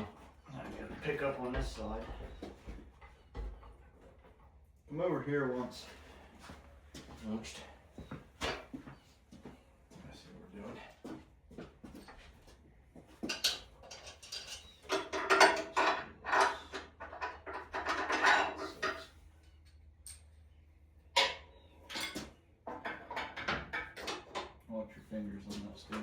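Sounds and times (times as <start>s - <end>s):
metal clanking and rattling: 13.2s - 19.2s, 21.2s - 24.6s.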